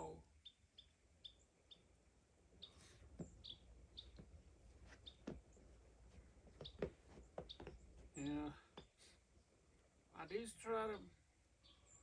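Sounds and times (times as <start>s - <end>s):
small bird chirps: 0.4s - 1.9s, 2.6s - 4.3s, 4.9s - 5.6s, 6.6s - 9.0s, 10.2s - 12.0s.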